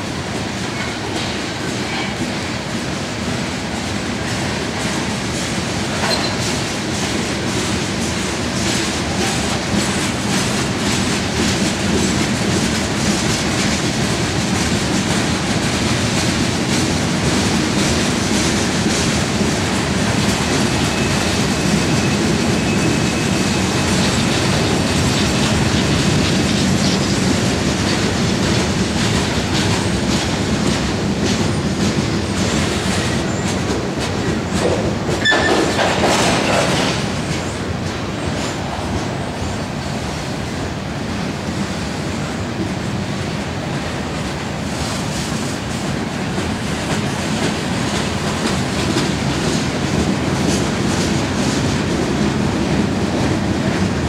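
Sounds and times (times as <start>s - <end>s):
clickety-clack over rail joints: 0.0s - 54.0s
train wheels rumbling on rail: 0.0s - 54.0s
high wheel squeal: 20.7s - 24.0s.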